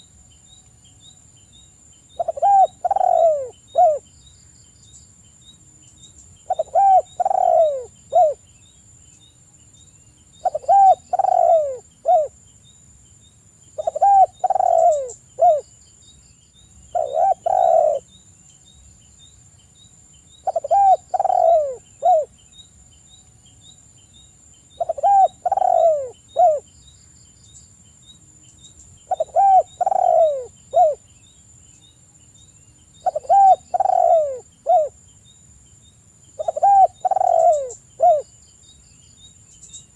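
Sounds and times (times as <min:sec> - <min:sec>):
dove cooing: 0:02.2 - 0:04.1, 0:06.5 - 0:08.4, 0:10.4 - 0:12.4, 0:13.8 - 0:15.6, 0:16.9 - 0:18.1, 0:20.4 - 0:22.3, 0:24.8 - 0:26.7, 0:29.1 - 0:31.0, 0:33.0 - 0:35.0, 0:36.4 - 0:38.3.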